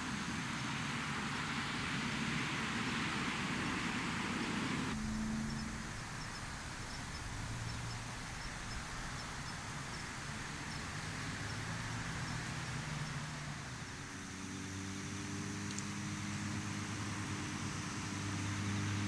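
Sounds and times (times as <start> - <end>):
faint low engine hum: 0.0 - 19.0
steady hiss: 0.0 - 19.0
faint high insect chirps: 4.4 - 15.0.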